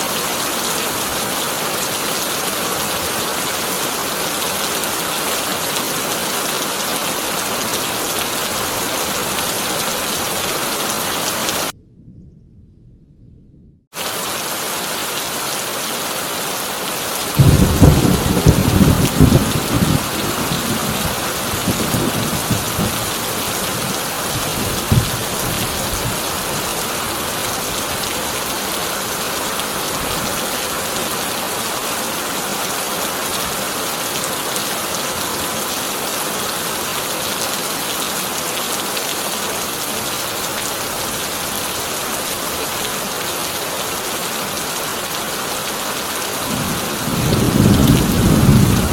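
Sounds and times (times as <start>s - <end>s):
heavy rain on a tin roof: 0.0s - 11.8s, 14.0s - 48.9s
rolling thunder: 11.7s - 13.8s, 17.4s - 26.5s, 46.5s - 48.9s
sharp thunderclap: 17.4s - 23.0s, 46.5s - 48.9s.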